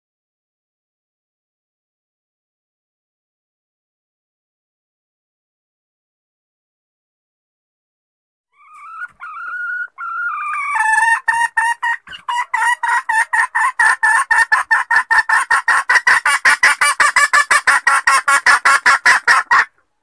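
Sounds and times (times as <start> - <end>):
hen lure call with clucks: 8.5 - 19.8.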